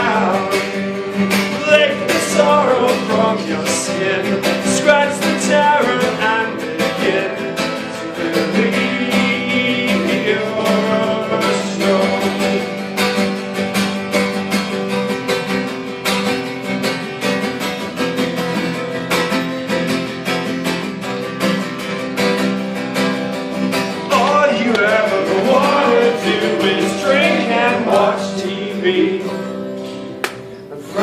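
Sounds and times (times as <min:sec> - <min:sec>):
person singing: 0:00.0 - 0:13.1, 0:24.0 - 0:29.6, 0:30.7 - 0:31.0
acoustic guitar strumming: 0:00.0 - 0:31.0.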